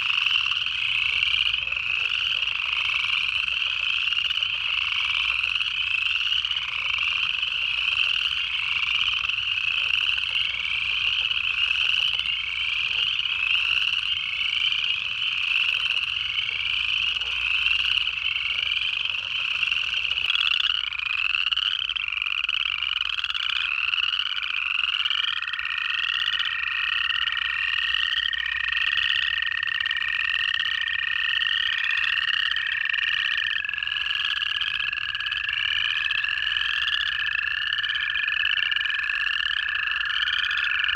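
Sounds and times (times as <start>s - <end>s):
chorus of frogs trilling: 0.0s - 40.9s
toad long steady trill: 0.0s - 40.9s.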